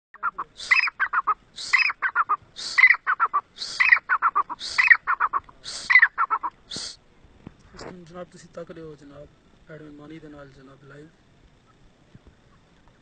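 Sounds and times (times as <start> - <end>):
francolin calling: 0.2 - 7.0.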